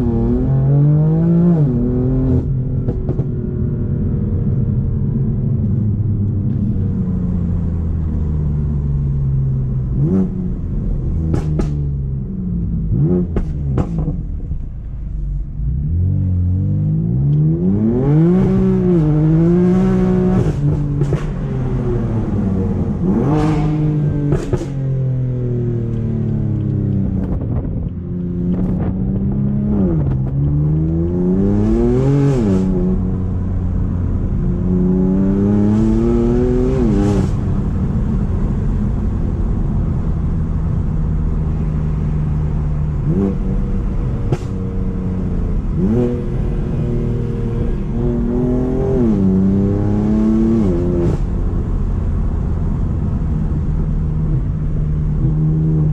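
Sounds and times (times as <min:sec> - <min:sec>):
car engine accelerating: 0:00.0 - 0:55.9.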